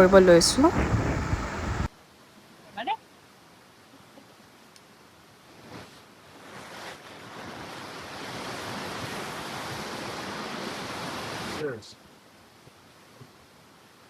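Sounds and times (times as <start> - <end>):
river water rushing: 0.0 - 1.9, 6.2 - 11.6.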